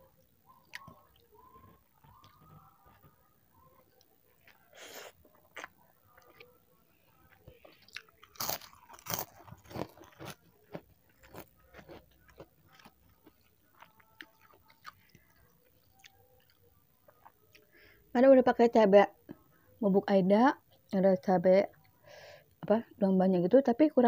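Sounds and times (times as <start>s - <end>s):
chewing noodles wet mouth sounds: 3.9s - 6.6s, 7.2s - 17.7s.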